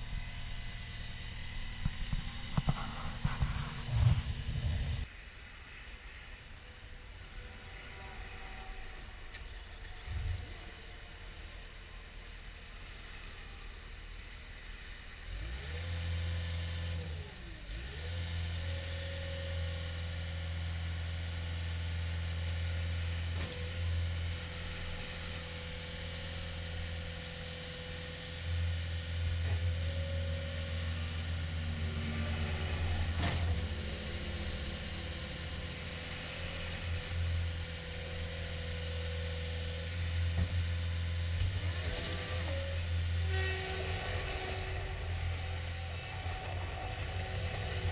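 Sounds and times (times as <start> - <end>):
diesel engine running: 0.0 - 5.1, 10.0 - 47.9
high machine whine: 0.0 - 12.5.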